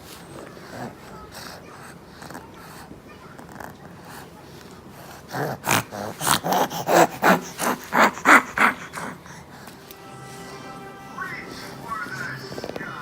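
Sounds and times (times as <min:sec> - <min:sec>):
breathy snort-like vocal sounds: 0:03.6 - 0:09.8.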